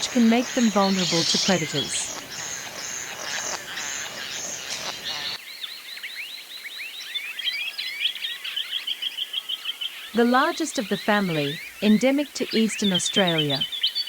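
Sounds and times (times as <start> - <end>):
harsh buzzing bird calls: 0.0 - 5.4, 10.0 - 14.0
high piping bird notes: 0.0 - 5.4, 10.1 - 13.9
birds chirping: 0.0 - 5.5, 8.2 - 14.0.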